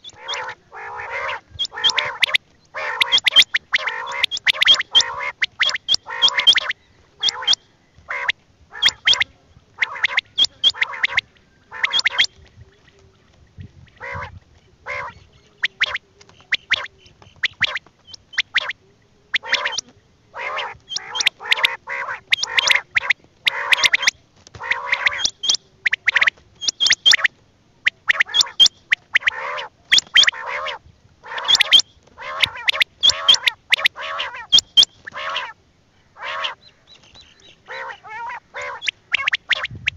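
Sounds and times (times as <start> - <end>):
quail calling: 0.0 - 39.9.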